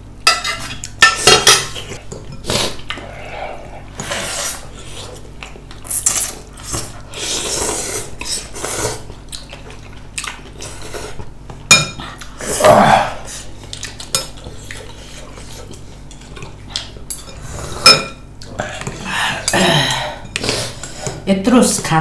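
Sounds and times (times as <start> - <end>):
cutlery clinking on dishes: 0.3 - 2.4.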